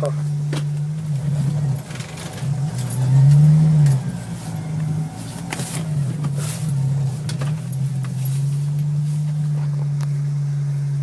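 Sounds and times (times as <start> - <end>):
engine heard from inside cab: 0.0 - 11.0.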